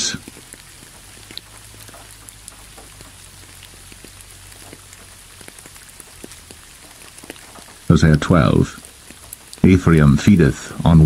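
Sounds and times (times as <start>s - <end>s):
raindrops ticking: 0.0s - 11.0s
steady rain: 0.0s - 11.0s.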